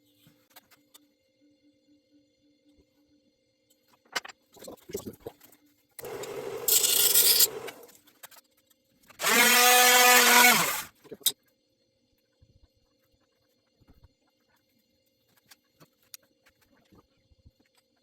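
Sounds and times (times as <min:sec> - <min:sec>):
power tool sanding wood: 0:06.0 - 0:07.9, 0:09.2 - 0:10.9
power tool motor whining: 0:06.0 - 0:08.0, 0:09.2 - 0:10.9.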